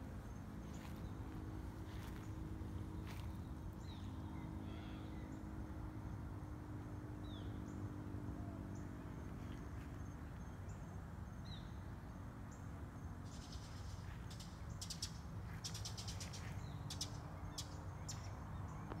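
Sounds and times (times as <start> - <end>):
birds chirping: 0.0 - 5.6.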